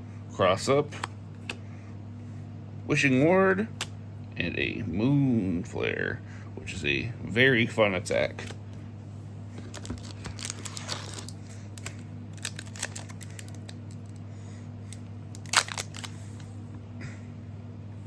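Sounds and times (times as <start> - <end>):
steady low hum: 0.0 - 18.0
wrapper crinkling: 9.6 - 14.2, 15.3 - 16.2.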